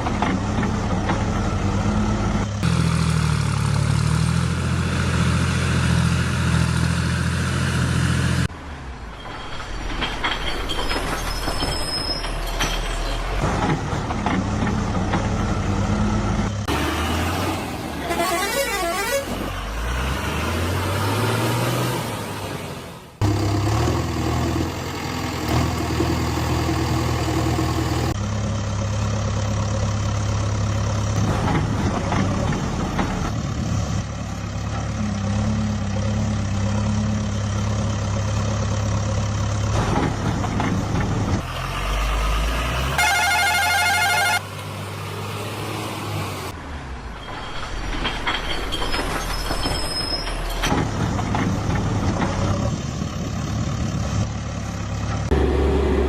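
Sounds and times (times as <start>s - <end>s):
vehicle engines: 0.0s - 56.0s
wavering horn-like tone: 43.0s - 44.4s.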